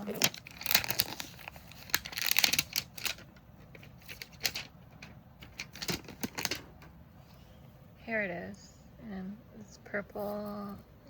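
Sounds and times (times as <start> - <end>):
packaging crinkling: 0.0 - 6.9.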